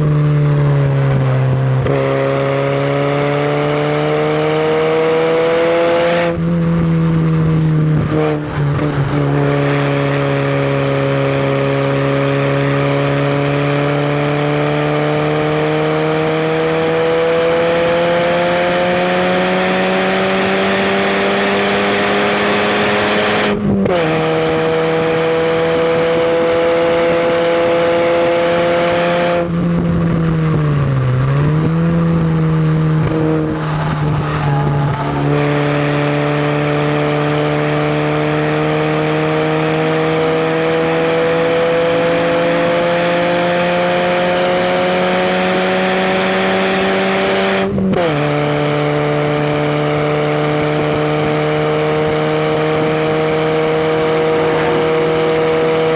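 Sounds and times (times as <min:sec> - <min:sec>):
car engine accelerating: 0:00.0 - 0:55.9
wind rush: 0:25.8 - 0:37.3.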